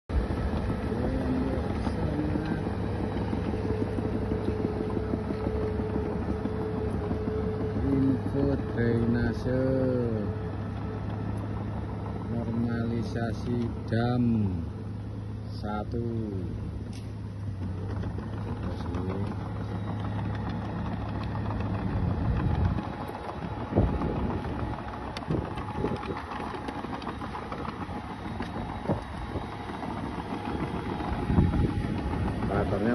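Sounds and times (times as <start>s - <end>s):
bulldozer diesel engine droning: 0.0s - 32.9s.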